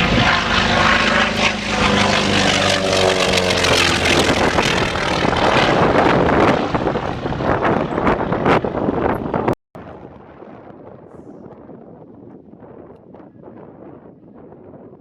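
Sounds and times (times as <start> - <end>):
light aircraft engine droning: 0.0 - 11.2.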